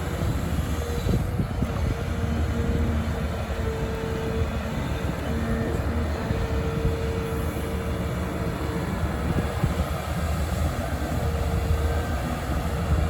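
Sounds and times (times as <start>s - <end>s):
diesel engine rumbling: 0.0s - 13.0s.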